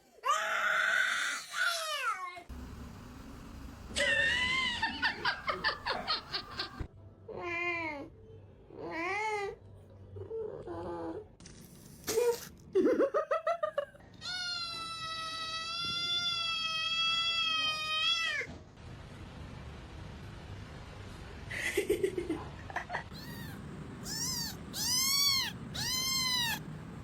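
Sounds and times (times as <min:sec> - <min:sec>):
cat meowing and yowling: 0:23.1 - 0:26.6
cat chirping: 0:23.1 - 0:26.7.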